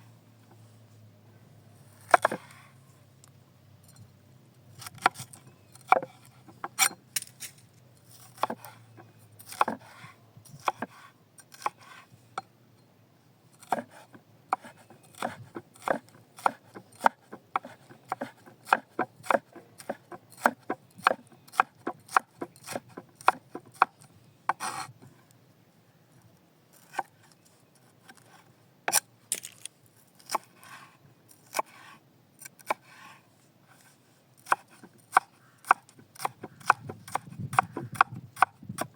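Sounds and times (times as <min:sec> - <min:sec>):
knife chopping on cutting board: 0:13.6 - 0:23.9.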